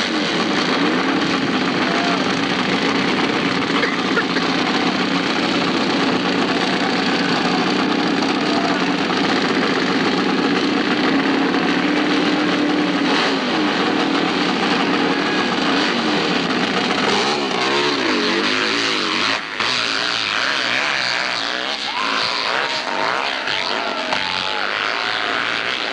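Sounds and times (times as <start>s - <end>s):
motorcycle engine revving: 0.0s - 25.9s.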